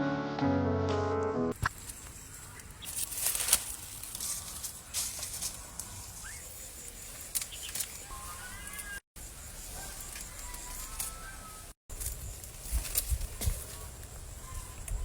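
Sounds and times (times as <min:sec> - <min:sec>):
faint outdoor rustling: 0:01.6 - 0:15.0.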